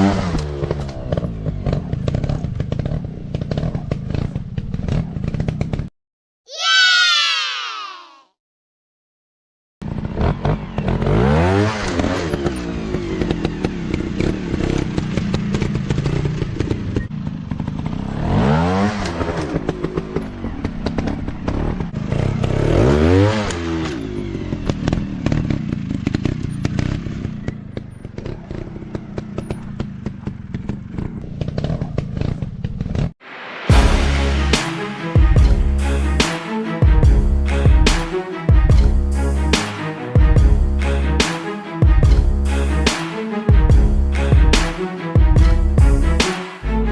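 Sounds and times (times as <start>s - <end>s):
dirt bike engine revving: 0.0s - 5.8s, 9.8s - 32.4s.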